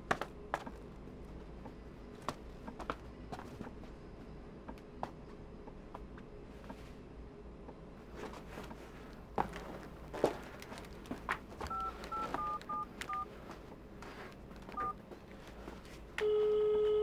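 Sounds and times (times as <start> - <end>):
phone keypad beeps: 11.7 - 13.3, 14.8 - 15.0
phone ringing tone: 11.7 - 13.3, 14.8 - 15.0.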